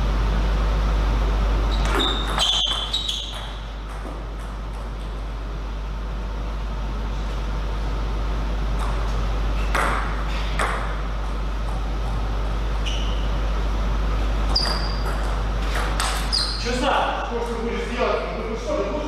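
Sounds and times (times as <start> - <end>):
steady low hum: 0.0 - 19.0
table tennis ball pings: 1.8 - 5.1.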